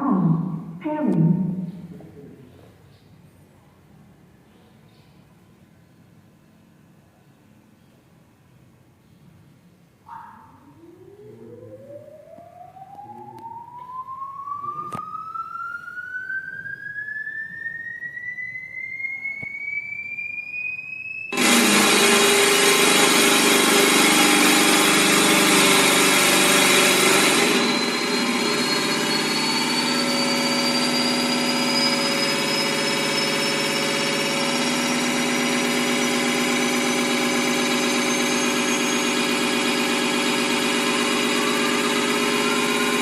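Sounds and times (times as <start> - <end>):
small motor whine rising: 10.8 - 43.0
harsh rattling buzzing noise: 21.1 - 43.0.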